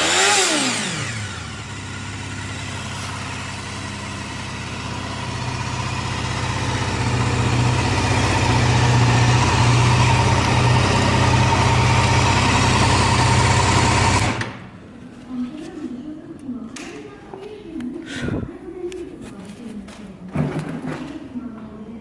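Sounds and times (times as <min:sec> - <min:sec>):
motorcycle engine running: 0:00.0 - 0:14.6.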